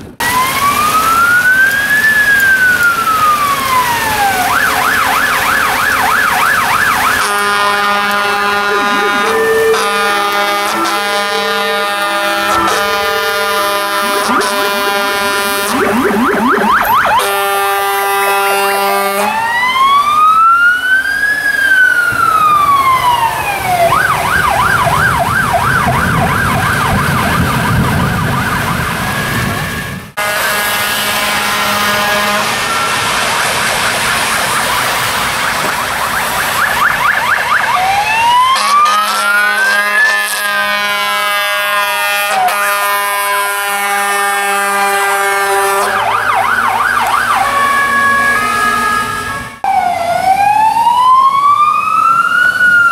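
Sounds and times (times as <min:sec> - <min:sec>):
vehicle engine noise: 0:00.0 - 0:19.2
fire engine sirens: 0:00.0 - 0:52.9.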